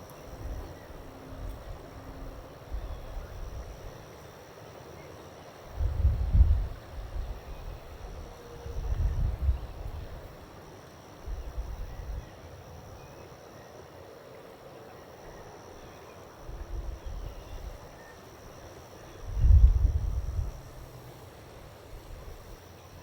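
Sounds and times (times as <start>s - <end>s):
faint outdoor background noise: 0.0s - 23.0s
wind buffeting microphone: 5.7s - 10.3s, 19.2s - 22.5s.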